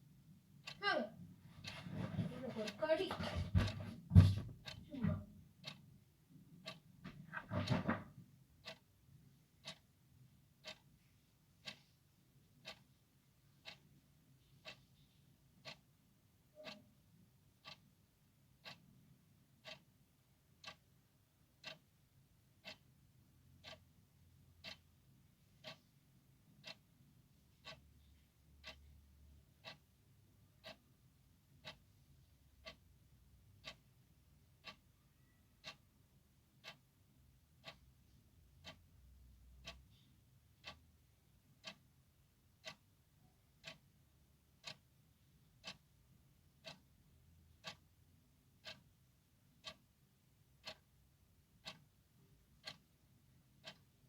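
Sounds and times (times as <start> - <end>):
clock ticking: 0.3 - 54.0
irregular knocking noises: 1.4 - 5.8, 6.6 - 8.8.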